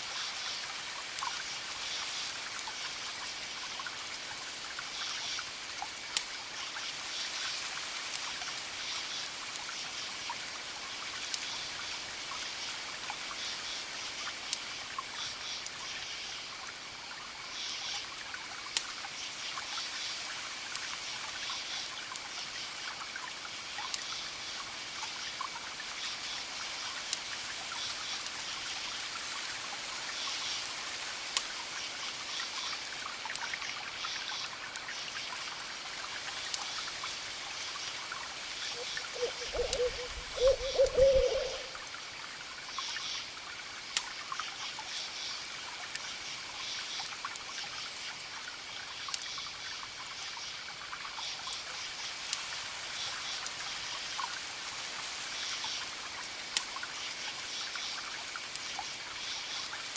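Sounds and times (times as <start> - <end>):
campfire crackling and popping: 11.3 - 11.5
crickets chirping: 36.6 - 42.0.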